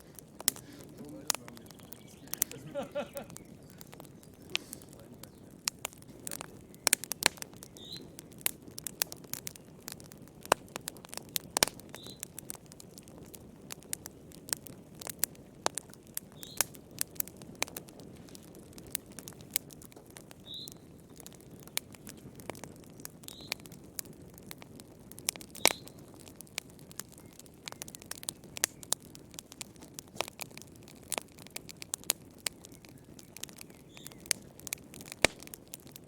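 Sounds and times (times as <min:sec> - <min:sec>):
burning logs crackling: 0:00.0 - 0:36.0
flames rushing: 0:00.0 - 0:36.0.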